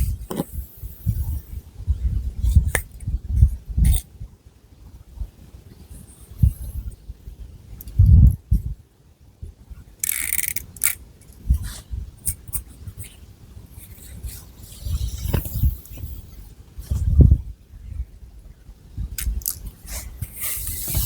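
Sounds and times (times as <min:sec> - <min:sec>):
dull low thumps: 0:16.8 - 0:17.9.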